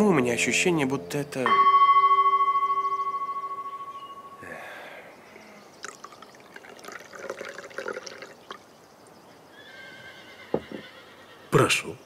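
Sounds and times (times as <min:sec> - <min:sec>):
horse whinnying: 0:09.6 - 0:11.6.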